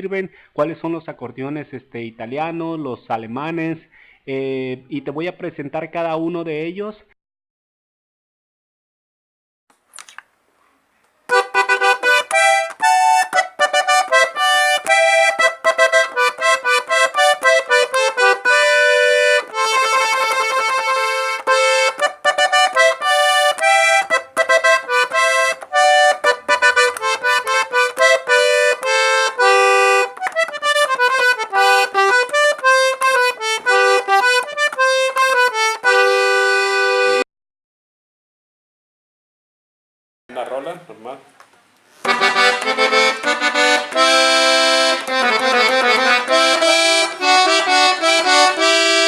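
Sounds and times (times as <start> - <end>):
accordion playing a tune: 11.3 - 37.3, 42.0 - 49.0.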